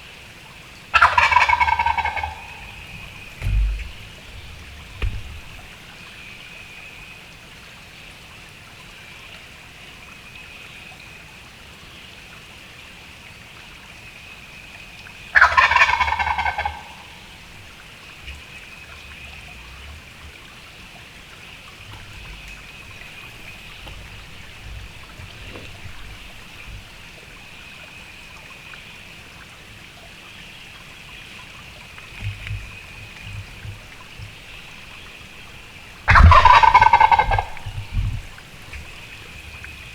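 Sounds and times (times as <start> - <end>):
turkey gobbling: 0.9 - 5.9, 15.3 - 18.5, 21.8 - 27.6, 33.0 - 39.8.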